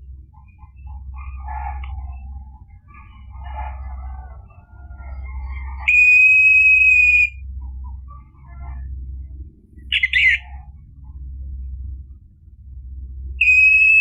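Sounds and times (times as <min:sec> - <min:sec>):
low steady hum: 0:00.0 - 0:14.0
long bird whistle: 0:05.5 - 0:07.4, 0:09.9 - 0:10.4, 0:13.4 - 0:14.0
harsh bird call: 0:05.8 - 0:07.4, 0:09.9 - 0:10.5.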